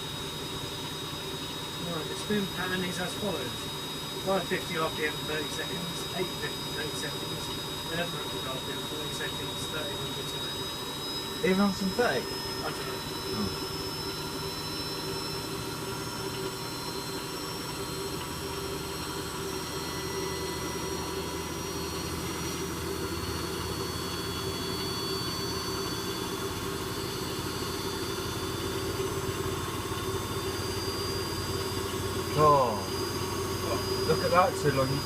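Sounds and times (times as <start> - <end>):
washing machine spinning: 0.0 - 35.0.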